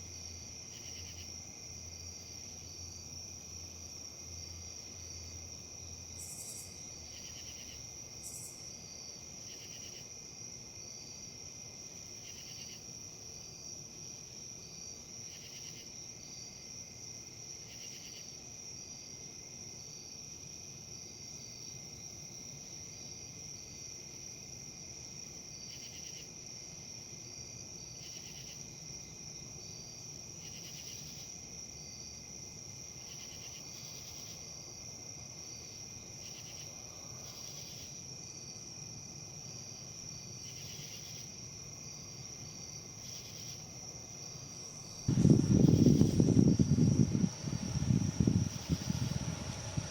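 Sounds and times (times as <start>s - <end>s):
insect chirps: 0.0s - 49.9s
insects trilling: 0.0s - 49.9s
wind in leaves: 42.7s - 49.9s.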